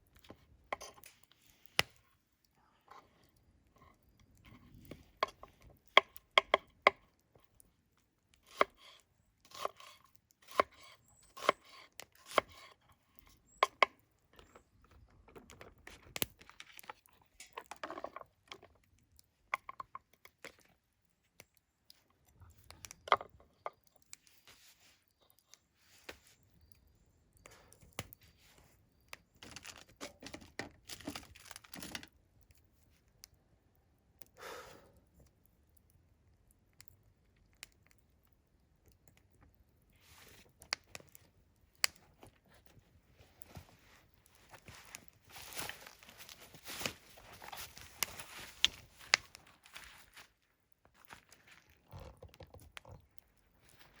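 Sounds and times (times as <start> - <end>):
rustling and handling food: 7.3 - 33.1, 39.3 - 54.0.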